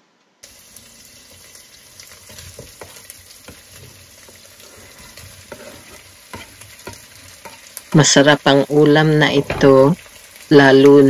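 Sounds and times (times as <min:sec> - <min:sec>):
onions sizzling in a pot: 0:00.4 - 0:11.0
spoon scraping a cutting board: 0:02.3 - 0:07.7.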